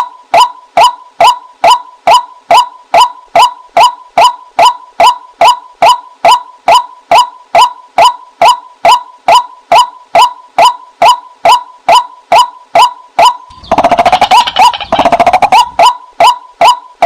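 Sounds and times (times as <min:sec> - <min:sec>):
waterhen calling: 0:13.5 - 0:16.4.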